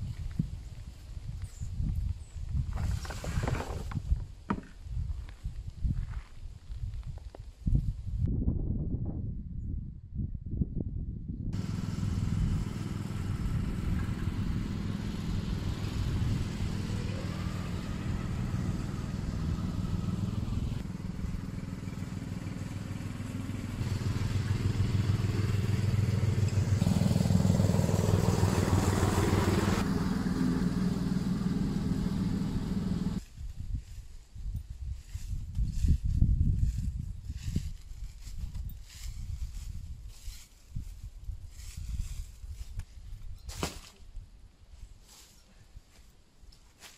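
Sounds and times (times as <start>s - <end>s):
lawn mower engine running: 11.6s - 33.2s.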